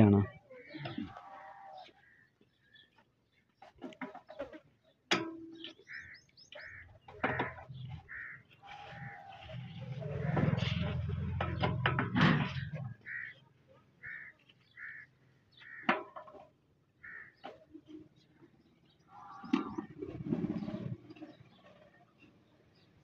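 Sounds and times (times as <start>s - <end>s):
bird calling: 0.0s - 3.0s, 5.5s - 11.8s, 12.4s - 15.9s
low rumble with clattering knocks: 9.0s - 13.1s.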